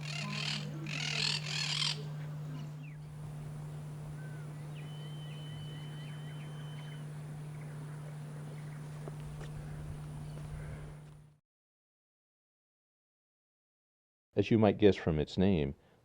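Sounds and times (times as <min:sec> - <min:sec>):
high bird calls: 0:00.0 - 0:11.1
steady low hum: 0:00.0 - 0:11.4.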